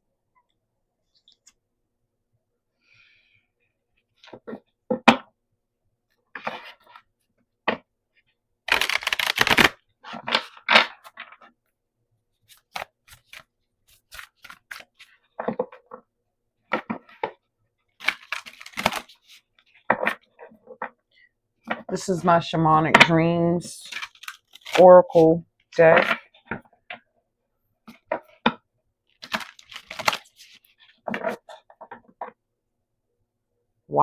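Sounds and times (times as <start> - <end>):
cards tapping clicking and rustling: 18.0 - 21.0, 29.2 - 32.4.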